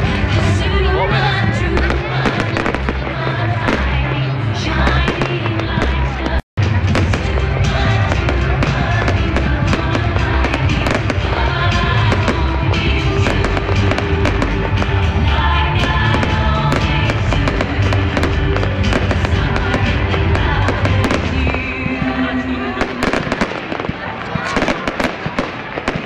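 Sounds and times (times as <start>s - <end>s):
fireworks crackling: 0.0s - 26.0s
loud music: 0.0s - 26.0s
fireworks bursting with bangs: 1.2s - 4.2s, 4.8s - 26.0s.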